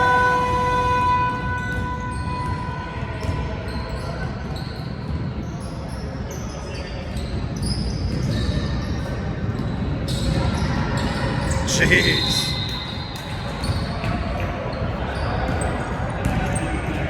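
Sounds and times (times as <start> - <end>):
gym hall noise: 0.0 - 17.0
sneaker squeaks: 1.5 - 17.0
basketball bouncing on court: 15.4 - 17.0.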